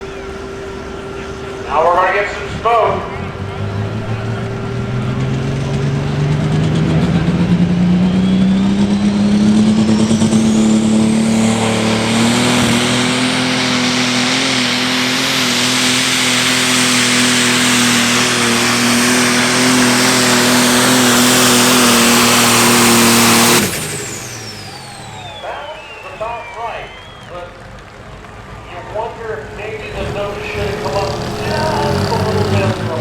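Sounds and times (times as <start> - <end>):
diesel tractor engine at full throttle: 0.0 - 33.0
high turbo whistle: 0.3 - 16.7, 19.6 - 27.6.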